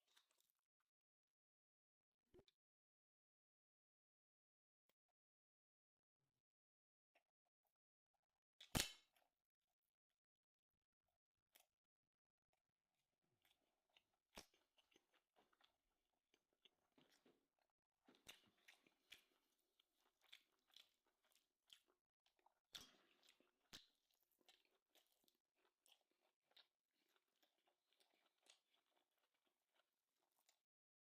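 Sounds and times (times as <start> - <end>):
chewing with crunching clicks: 0.0 - 0.6, 11.5 - 11.8, 12.5 - 31.0.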